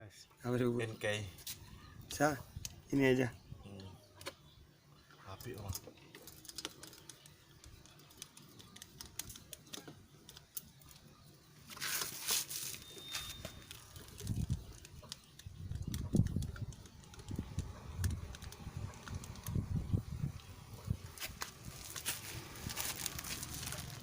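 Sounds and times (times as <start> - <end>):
rustling hiss: 18.5 - 24.0.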